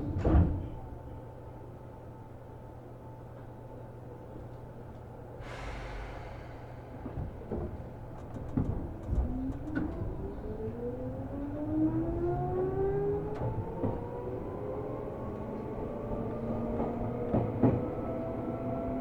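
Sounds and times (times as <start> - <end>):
train clunks: 0.0 - 1.2, 5.4 - 11.0, 16.7 - 18.0
hiss of air: 5.4 - 7.5.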